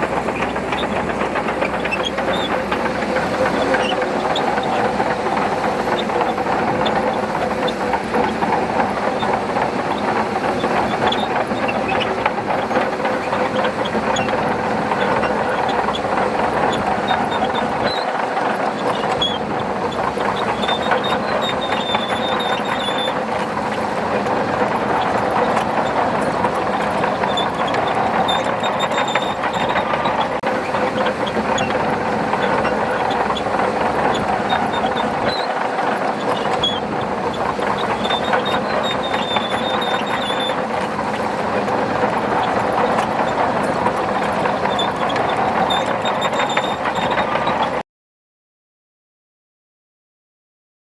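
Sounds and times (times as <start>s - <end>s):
bulldozer diesel engine running: 0.0s - 47.8s
steel tracks clattering: 0.0s - 47.8s.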